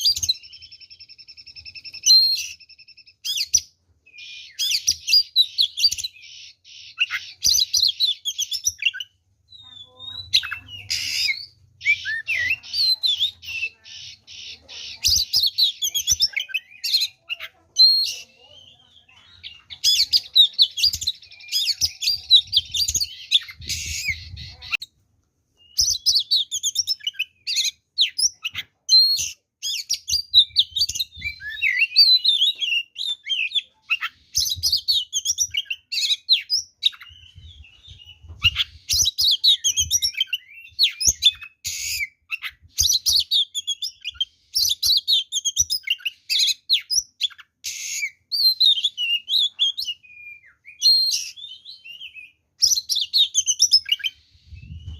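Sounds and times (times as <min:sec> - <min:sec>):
bird whistling and chattering: 0:00.0 - 0:24.9, 0:25.6 - 0:54.9
harsh rasping bird calls: 0:00.0 - 0:24.9.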